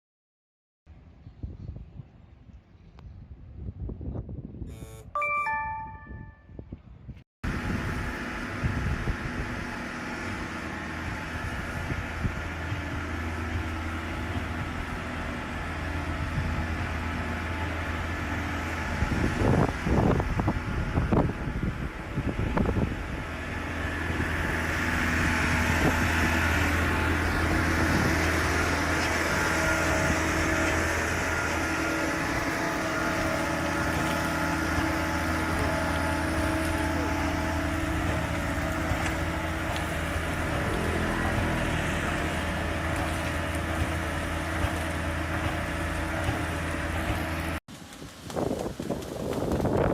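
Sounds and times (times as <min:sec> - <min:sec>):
diesel engine running: 0:07.4 - 0:49.9.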